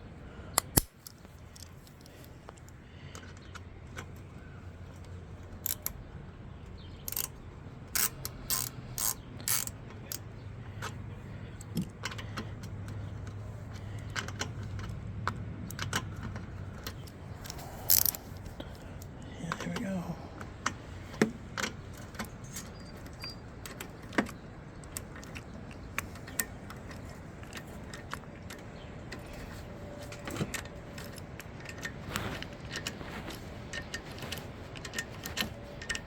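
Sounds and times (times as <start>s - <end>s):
steady low hum: 0.0s - 36.0s
metallic clicks and clinks: 7.0s - 11.0s, 11.6s - 19.8s.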